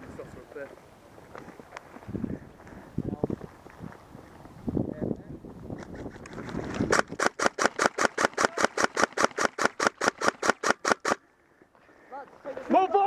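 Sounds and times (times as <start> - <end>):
airsoft gun firing: 6.9 - 11.2.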